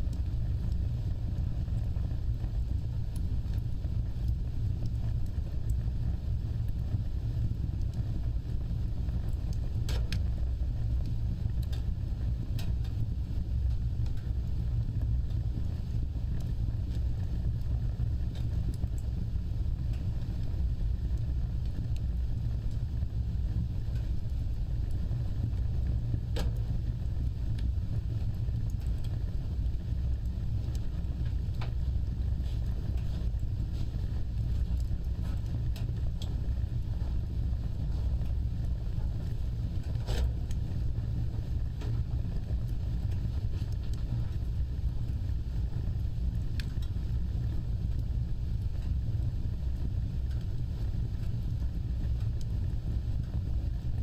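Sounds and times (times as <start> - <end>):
fire burning with crackles: 0.0 - 54.0.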